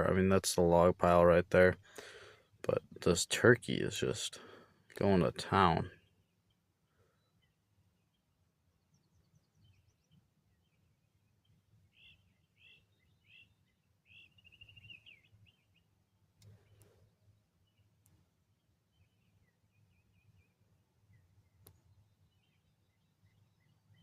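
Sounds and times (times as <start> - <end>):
songbird chirping and trilling: 5.1 - 24.0.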